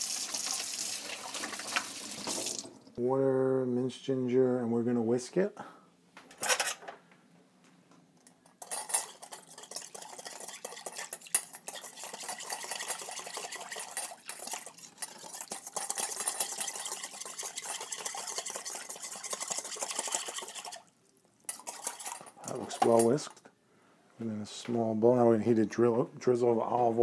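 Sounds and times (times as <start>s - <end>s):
whisk clattering in a bowl: 8.6s - 20.8s, 21.5s - 23.1s.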